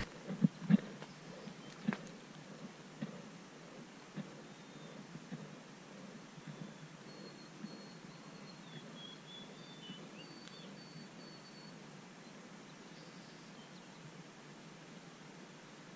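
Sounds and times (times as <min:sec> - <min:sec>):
steady background hiss: 0:00.0 - 0:15.9
high whistled songbird notes: 0:06.4 - 0:14.0.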